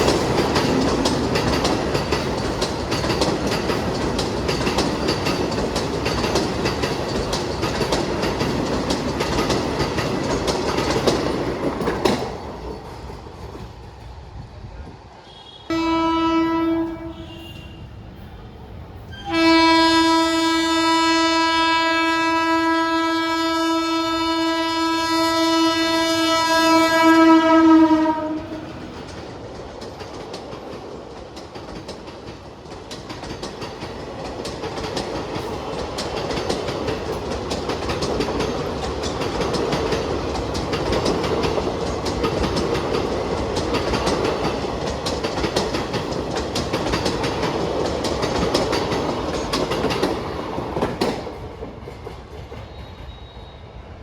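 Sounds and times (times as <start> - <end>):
train rumble and wheel clatter: 0.0 - 54.0
train horn blast: 15.2 - 18.0, 19.1 - 28.7.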